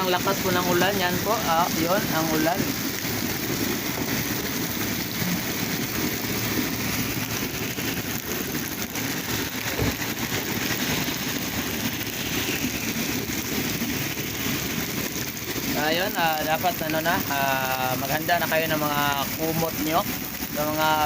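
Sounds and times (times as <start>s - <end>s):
heavy rain pouring: 0.0s - 21.0s
low thump: 9.7s - 10.0s.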